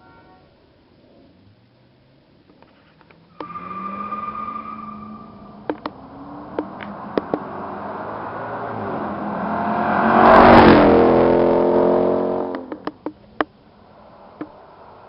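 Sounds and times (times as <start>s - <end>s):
car engine exhaust roaring: 3.3s - 15.0s
sharp clicks: 12.5s - 13.5s.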